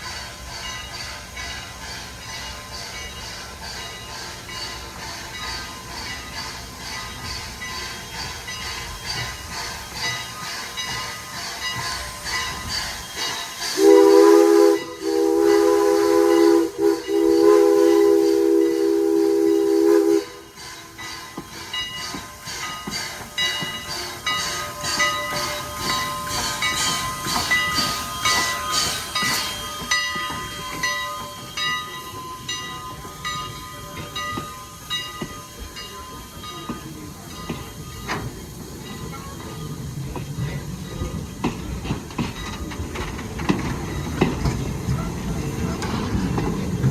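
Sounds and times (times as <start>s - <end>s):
steam hissing: 0.0s - 46.9s
steam locomotive exhaust beats: 0.0s - 46.9s
steam whistle chord: 13.7s - 20.5s.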